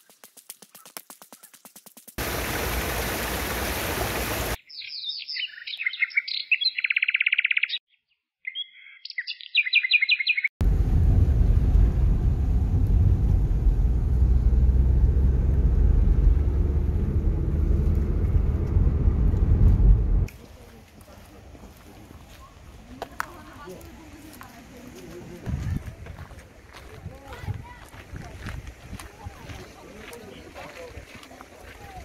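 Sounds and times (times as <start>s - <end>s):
songbird singing: 4.6s - 10.6s
loud low rumbling noise: 10.6s - 20.3s.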